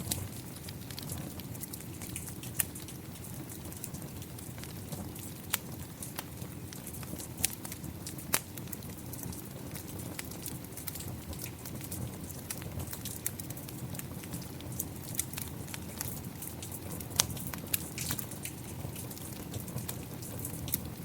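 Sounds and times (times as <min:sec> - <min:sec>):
rain rushing: 0:00.0 - 0:01.6
fire popping: 0:00.0 - 0:21.0
wood fire crackling: 0:00.0 - 0:21.0.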